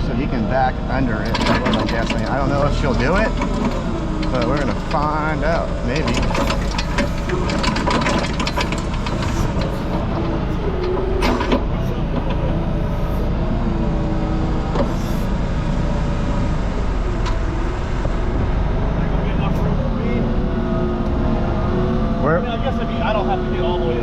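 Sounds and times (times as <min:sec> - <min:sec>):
diesel engine under load: 0:00.0 - 0:24.0
metal clanks and rattles: 0:01.0 - 0:13.2.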